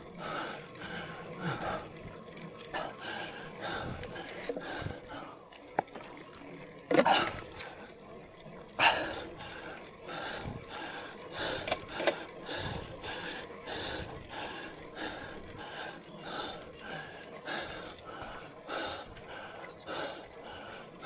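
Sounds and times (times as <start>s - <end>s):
person breathing hard: 2.8s - 5.5s, 8.8s - 20.9s.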